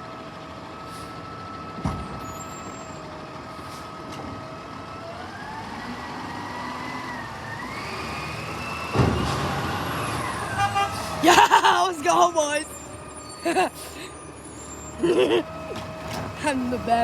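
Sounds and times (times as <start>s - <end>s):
garbage truck engine and hydraulic whine: 0.0s - 17.0s.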